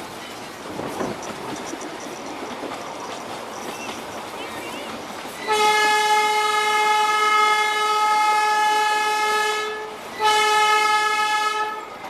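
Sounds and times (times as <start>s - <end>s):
train horn blast: 5.4s - 11.9s.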